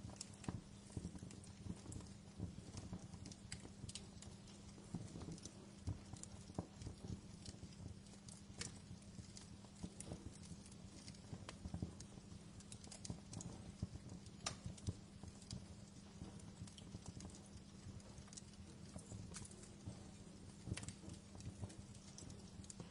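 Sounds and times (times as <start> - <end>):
faint low hum: 0.0 - 22.9
wood fire crackling: 0.0 - 22.9.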